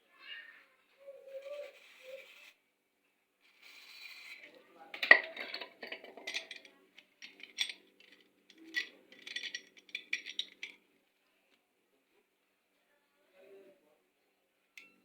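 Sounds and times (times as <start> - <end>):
metal tools clinking and rattling: 5.0 - 10.8.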